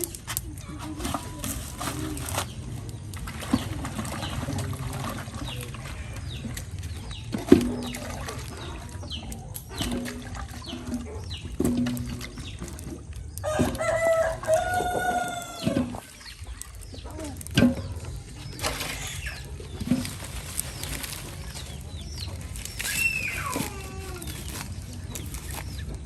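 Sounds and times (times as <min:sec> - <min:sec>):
rooster crowing: 0:13.4 - 0:15.8.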